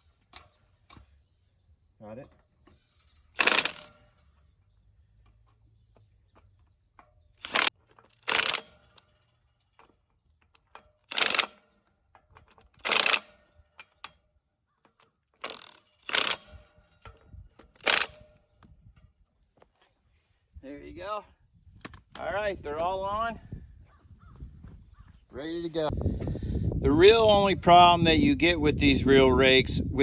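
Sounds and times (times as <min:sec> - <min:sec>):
metal clanks and rattles: 0:00.0 - 0:01.2, 0:02.0 - 0:20.0
crickets chirring: 0:00.0 - 0:30.0.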